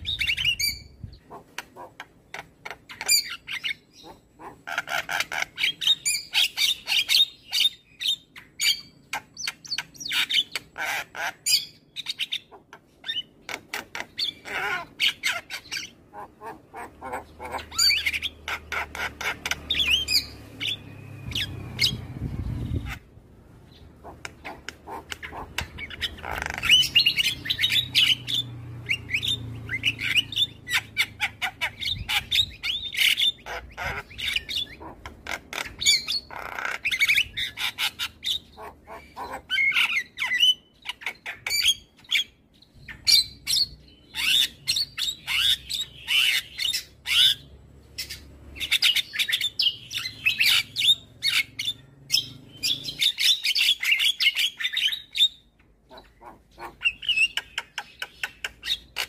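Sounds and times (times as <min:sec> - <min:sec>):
mynas squawking and chattering: 0:00.0 - 0:07.2, 0:10.1 - 0:23.2, 0:23.9 - 0:41.6, 0:55.8 - 0:59.0.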